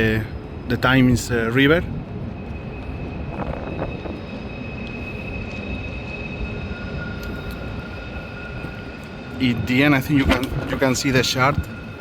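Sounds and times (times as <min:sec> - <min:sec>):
wind buffeting microphone: 0:00.0 - 0:12.0
thin high-pitched whine: 0:02.4 - 0:12.0.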